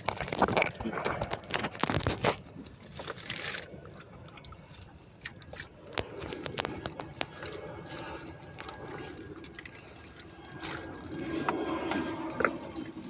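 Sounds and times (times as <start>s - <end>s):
knocks and scrapes: 0.0s - 3.7s
water sounds: 0.0s - 13.0s.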